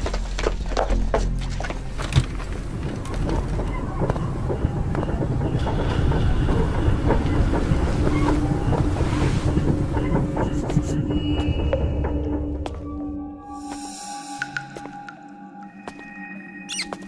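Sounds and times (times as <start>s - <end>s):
low rumbling drone: 1.2s - 14.2s.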